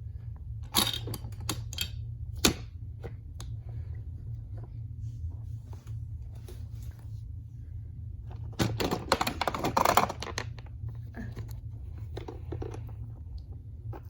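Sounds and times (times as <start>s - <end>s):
plastic toys clicking and clattering: 0.6s - 2.6s, 8.6s - 10.7s.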